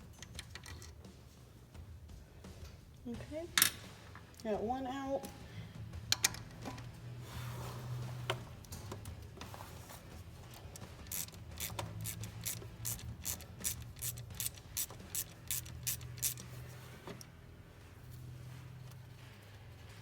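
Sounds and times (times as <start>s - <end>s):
ratcheting socket wrench clicking: 10.5s - 16.6s.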